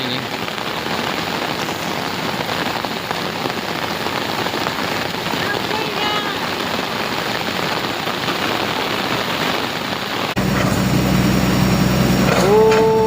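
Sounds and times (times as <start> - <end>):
heavy rain pouring: 0.0 - 13.0
low engine hum: 10.4 - 13.0.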